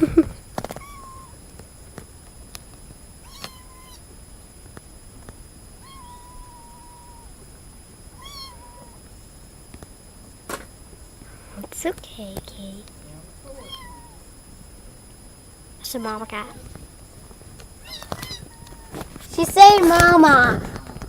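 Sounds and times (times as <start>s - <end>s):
kitten mewing: 0.0s - 1.4s, 3.2s - 4.1s, 5.8s - 7.4s, 8.1s - 9.1s, 13.4s - 14.3s, 17.8s - 20.9s.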